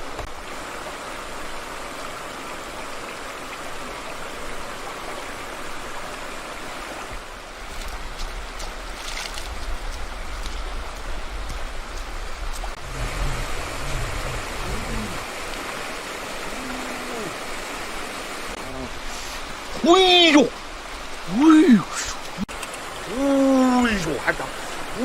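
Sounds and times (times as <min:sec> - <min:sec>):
stream water running: 0:00.0 - 0:25.0
low rumble: 0:09.5 - 0:15.2
low voice murmuring: 0:13.0 - 0:15.3, 0:16.4 - 0:17.6, 0:18.6 - 0:19.1, 0:23.0 - 0:25.0.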